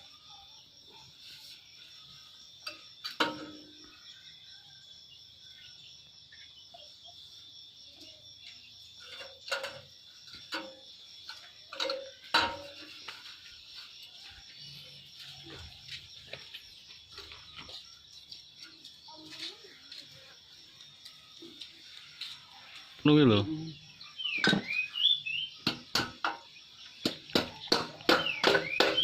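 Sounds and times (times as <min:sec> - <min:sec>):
crickets trilling: 0:00.0 - 0:29.0
bird chirps: 0:22.6 - 0:29.0
sharp knocks: 0:25.6 - 0:29.0.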